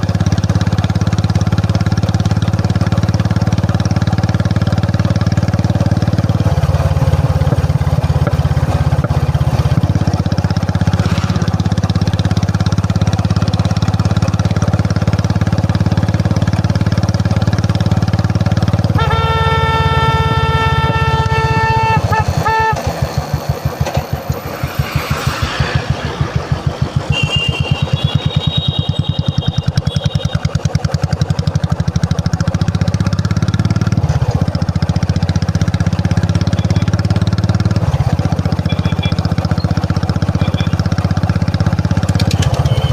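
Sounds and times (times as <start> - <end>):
motorcycle engine running: 0.0 - 42.9
steady horn-like tone: 18.9 - 22.9, 24.8 - 30.4.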